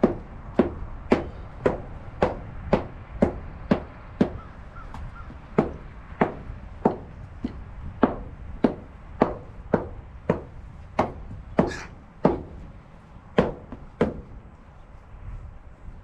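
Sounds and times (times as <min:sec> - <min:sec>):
hand tool striking: 0:00.0 - 0:12.6.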